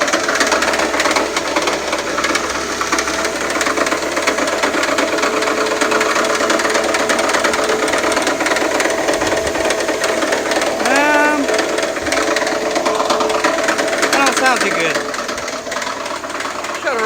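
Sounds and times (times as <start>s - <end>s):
engine running: 0.0s - 17.0s
rapid knocking clatter: 0.0s - 17.0s.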